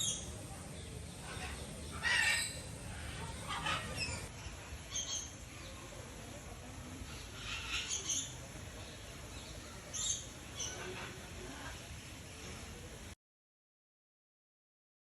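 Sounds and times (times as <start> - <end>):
birds chirping: 0.0 - 5.3
low background noise: 0.0 - 13.2.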